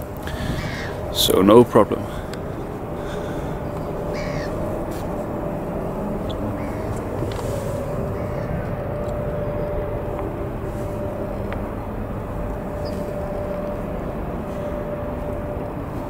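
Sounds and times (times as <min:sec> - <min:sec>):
bird calling: 0:00.0 - 0:01.2, 0:02.0 - 0:09.8, 0:10.7 - 0:13.7
faint hum: 0:00.0 - 0:16.0.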